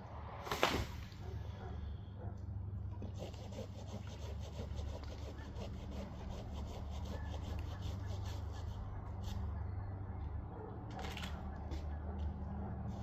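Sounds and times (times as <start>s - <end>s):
steady low hum: 0.0s - 13.0s
hand saw cutting wood: 3.0s - 8.8s.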